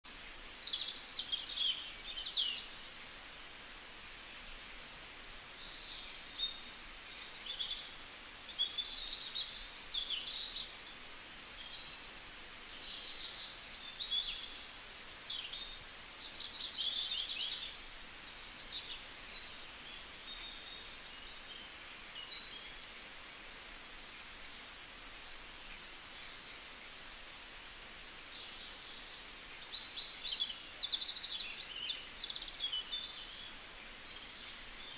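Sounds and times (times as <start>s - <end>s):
faint steady hiss: 0.0s - 34.9s
small birds chirping: 0.0s - 34.9s.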